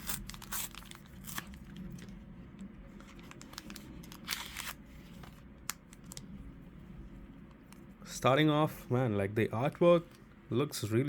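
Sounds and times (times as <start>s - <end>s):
foil wrapper crinkling: 0.0s - 2.2s, 3.0s - 4.8s
foil wrapper rustling: 0.0s - 2.2s, 3.0s - 5.1s.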